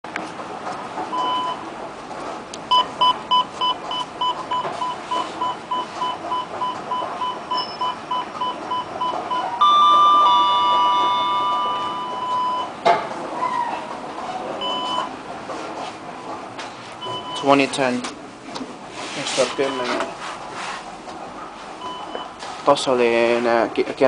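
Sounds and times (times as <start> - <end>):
elevator electronic beeping: 1.1 - 1.8, 2.6 - 12.8, 14.4 - 15.3, 17.0 - 17.7, 19.4 - 20.1, 21.8 - 22.4.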